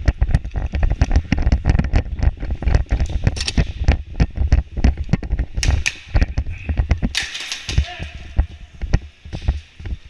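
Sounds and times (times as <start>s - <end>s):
low thumps on microphone: 0.0s - 7.1s.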